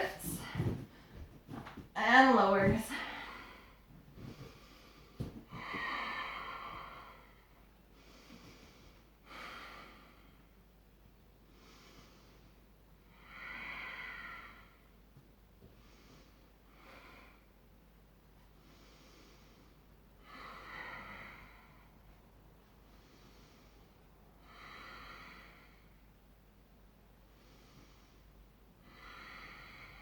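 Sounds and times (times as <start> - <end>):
woman breathing deeply: 2.9 - 10.6, 11.5 - 15.0, 18.6 - 22.2, 22.8 - 26.1, 27.3 - 30.0.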